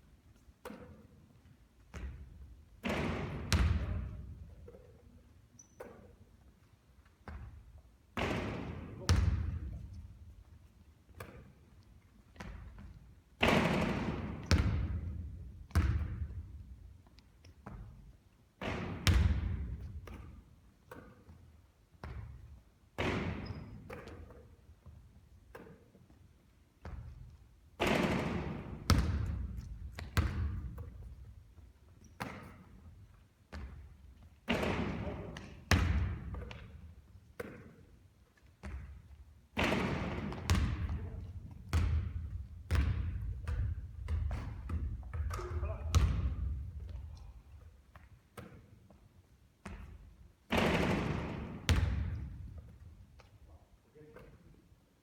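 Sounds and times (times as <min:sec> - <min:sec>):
basketball bouncing on hard court: 0:01.8 - 0:04.9, 0:07.2 - 0:10.5, 0:11.1 - 0:26.1, 0:26.8 - 0:37.8, 0:38.6 - 0:49.0, 0:49.6 - 0:53.3
basketball hitting hoop: 0:02.8 - 0:04.1, 0:13.4 - 0:16.3, 0:18.6 - 0:20.3, 0:23.0 - 0:24.2, 0:27.8 - 0:30.9, 0:34.5 - 0:36.7, 0:39.6 - 0:41.0, 0:41.7 - 0:46.6, 0:50.5 - 0:52.6.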